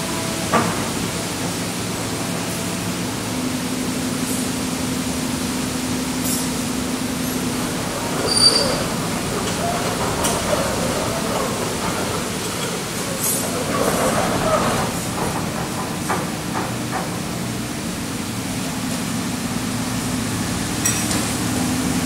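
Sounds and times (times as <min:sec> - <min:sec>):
excavator running: 0:00.0 - 0:22.0
high-pitched squeal: 0:08.2 - 0:09.1.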